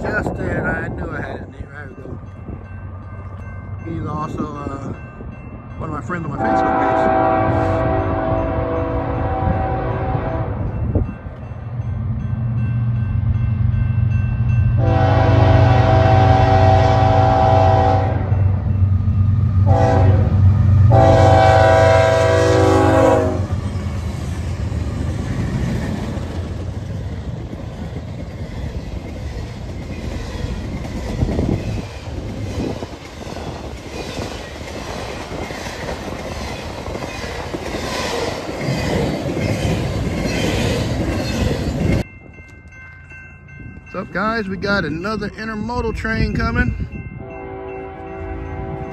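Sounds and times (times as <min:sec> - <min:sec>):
train air horn: 0:06.4 - 0:10.7, 0:14.8 - 0:18.4, 0:19.6 - 0:23.5, 0:47.2 - 0:48.9
diesel locomotives under throttle: 0:06.4 - 0:11.4, 0:14.7 - 0:42.0.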